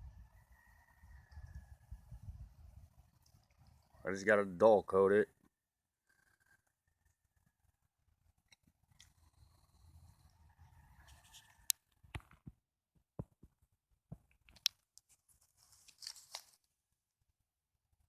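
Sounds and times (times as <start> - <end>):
rustling scrape: 15.1 - 16.6.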